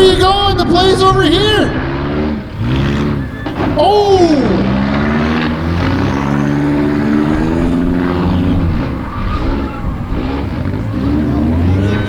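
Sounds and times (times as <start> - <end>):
car engines revving hard: 0.0 - 12.0.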